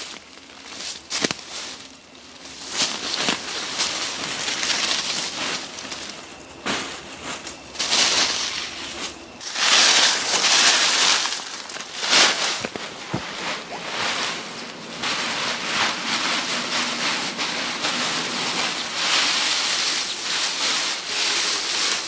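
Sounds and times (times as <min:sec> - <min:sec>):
dry leaves rustling: 0:00.0 - 0:22.0
twigs snapping: 0:07.5 - 0:13.4.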